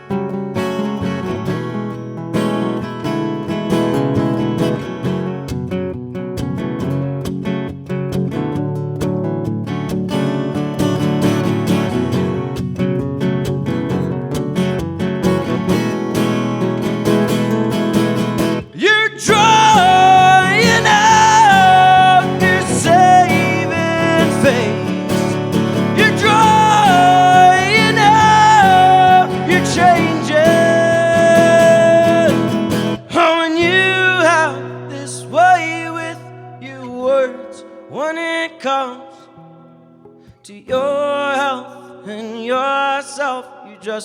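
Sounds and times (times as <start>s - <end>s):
acoustic guitar strumming: 0.0s - 44.0s
wordless singing: 18.7s - 39.3s.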